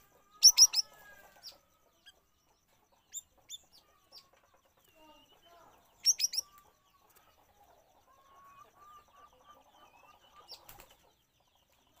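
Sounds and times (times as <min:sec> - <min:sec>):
faint bird chirps: 0:00.0 - 0:12.0
flutter of wings: 0:10.5 - 0:11.1.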